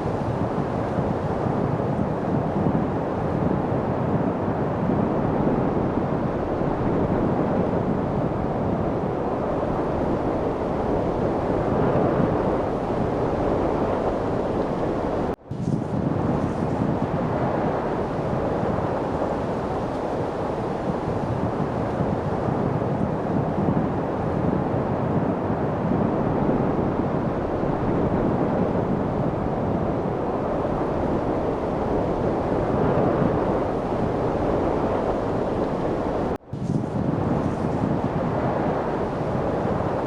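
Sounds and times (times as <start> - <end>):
wind rushing: 0.0 - 40.0.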